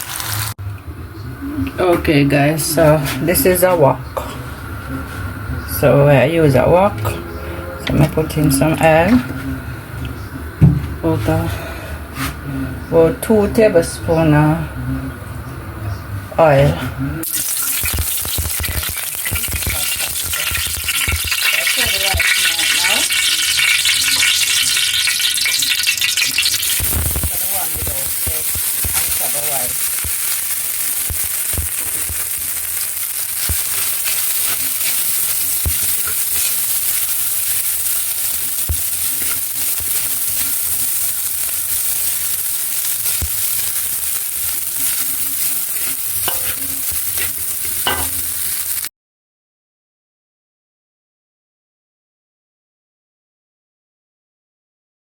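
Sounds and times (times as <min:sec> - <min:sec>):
food sizzling in wok: 0:00.0 - 0:00.6, 0:17.2 - 0:48.9.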